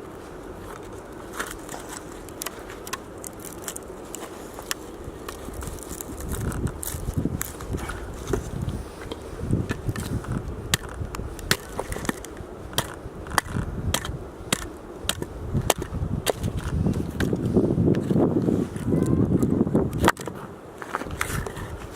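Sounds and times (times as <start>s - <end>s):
axe chopping wood: 10.7s - 17.4s.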